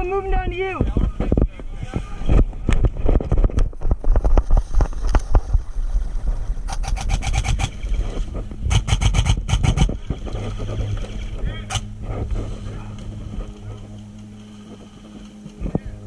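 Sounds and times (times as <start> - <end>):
wind rumble on microphone: 0.0 - 16.0
rapid airsoft gun fire: 6.7 - 7.7, 8.7 - 9.9.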